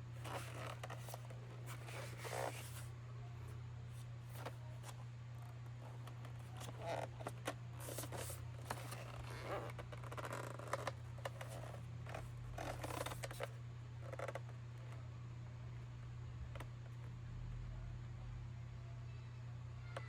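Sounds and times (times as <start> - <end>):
steady low hum: 0.0 - 20.0
packaging rustling and scraping: 0.2 - 2.9.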